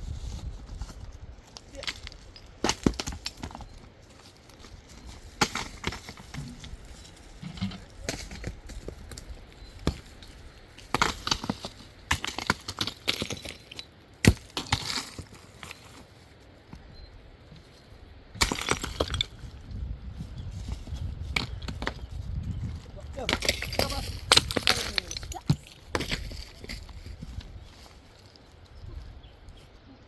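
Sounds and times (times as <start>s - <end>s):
stones knocking together: 1.5s - 3.9s, 4.6s - 16.0s, 18.4s - 27.9s.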